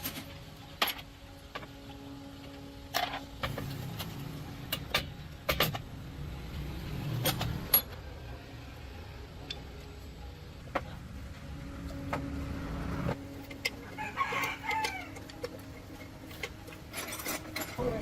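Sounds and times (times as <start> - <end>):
sharp knocks on metal parts: 3.0 - 6.0.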